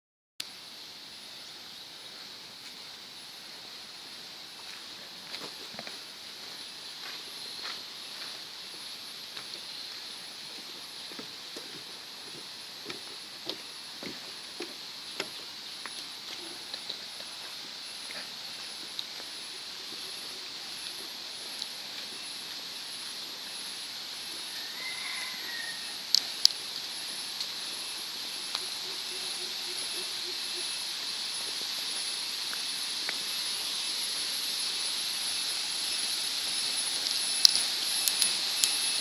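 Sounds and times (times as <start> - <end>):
thin high whine: 0.4 - 39.0
waterfall rushing: 32.1 - 39.0
sharp clicks: 37.4 - 38.8.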